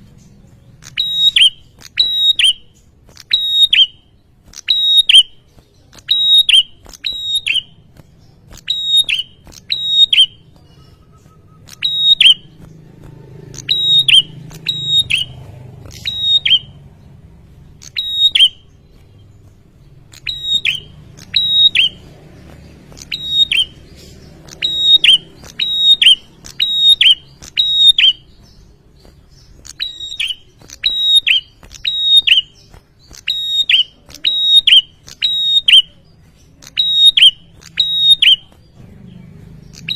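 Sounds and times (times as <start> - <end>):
songbird chirping: 0.0 - 39.9
faint low rumble: 10.4 - 26.5.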